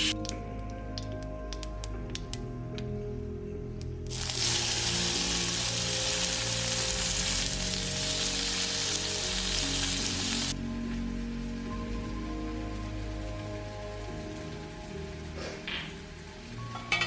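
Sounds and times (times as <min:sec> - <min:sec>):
food sizzling in hot oil: 0:04.1 - 0:10.6.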